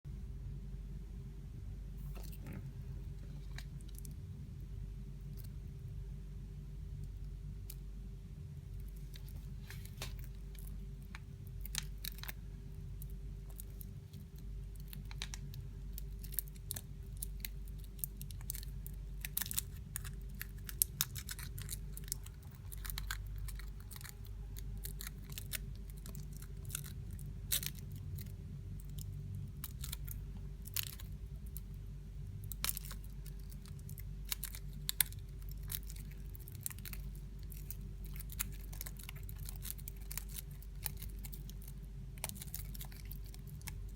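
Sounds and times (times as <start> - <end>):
low steady hum: 0.1 - 43.9
foil wrapper crinkling: 32.5 - 43.9.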